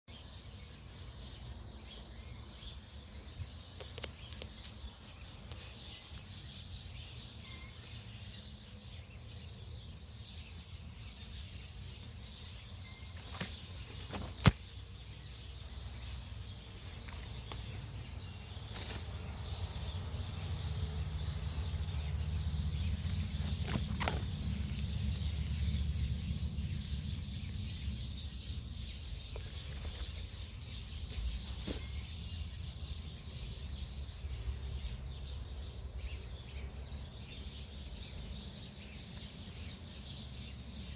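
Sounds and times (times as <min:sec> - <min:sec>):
birds chirping: 0:00.0 - 0:40.9
steady low rumble: 0:14.7 - 0:40.9.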